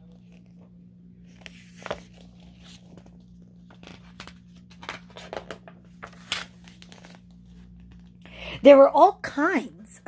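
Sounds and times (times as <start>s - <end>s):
faint steady hum: 0.0s - 10.0s
paper pages rustling: 1.2s - 8.2s.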